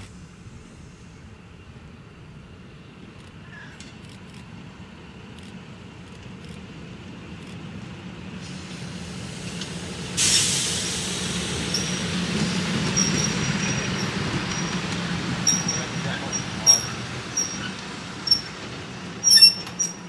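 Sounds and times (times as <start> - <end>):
train rumbling: 0.0 - 20.0
train rushing past: 6.6 - 20.0
wheels squealing on rail: 11.5 - 20.0.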